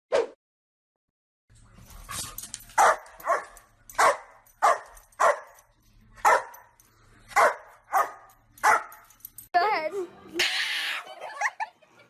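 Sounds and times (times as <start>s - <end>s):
dog barking: 2.8s - 5.6s, 6.2s - 9.0s.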